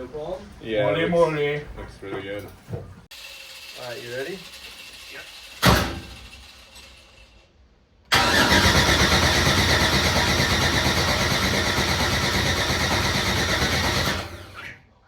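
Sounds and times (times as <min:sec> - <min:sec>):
starter motor cranking engine: 0:03.1 - 0:07.4, 0:08.1 - 0:14.7.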